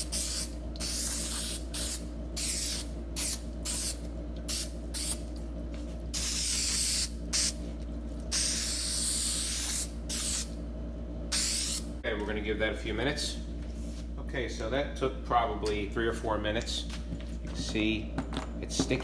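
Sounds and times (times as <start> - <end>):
aerosol spray hissing in bursts: 0.0 - 5.2, 6.2 - 7.6, 8.3 - 10.5, 11.3 - 11.8.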